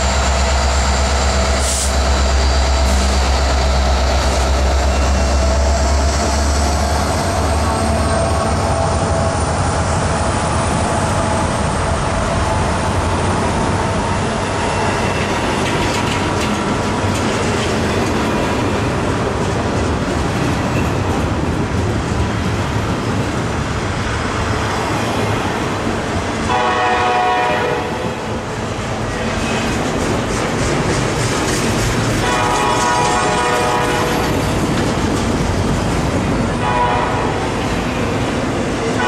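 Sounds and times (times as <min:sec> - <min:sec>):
train wheels rumbling on rail: 0:00.0 - 0:39.0
train horn blast: 0:26.5 - 0:28.2, 0:32.2 - 0:34.4, 0:36.6 - 0:37.6.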